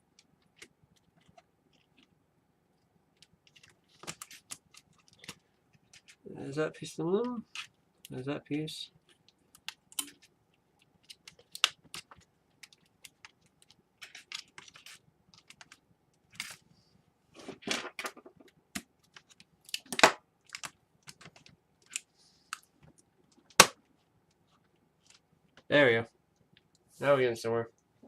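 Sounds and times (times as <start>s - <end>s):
laptop parts clicking and scraping: 0.2s - 2.1s, 3.2s - 6.2s, 9.0s - 16.6s.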